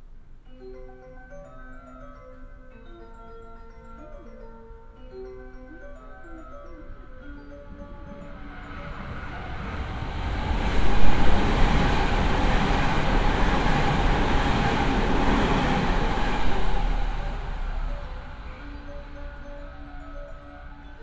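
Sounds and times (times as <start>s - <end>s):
electric train passing: 0.6s - 21.0s
train rumble and rail noise: 7.6s - 21.0s.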